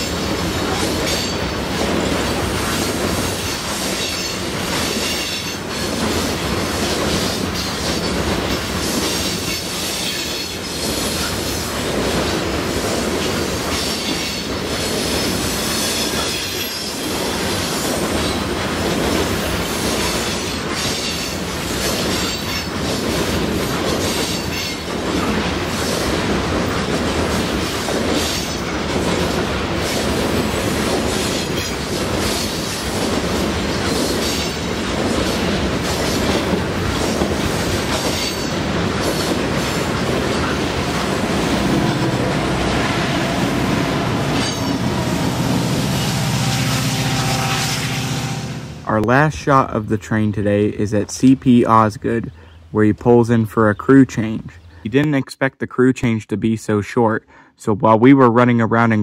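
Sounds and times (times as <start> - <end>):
train wheels rumbling on rails: 0.0 - 50.1.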